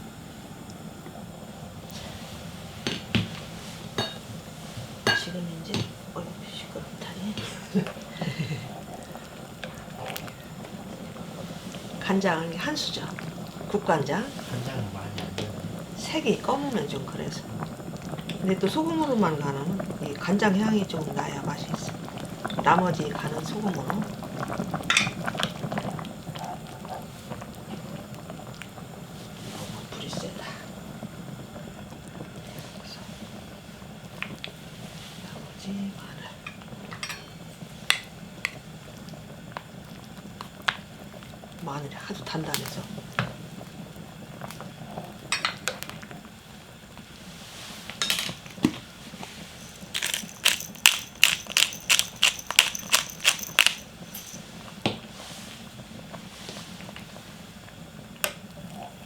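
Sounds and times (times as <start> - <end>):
broth boiling and bubbling: 0.0 - 59.0
scattered clicks: 49.9 - 54.3.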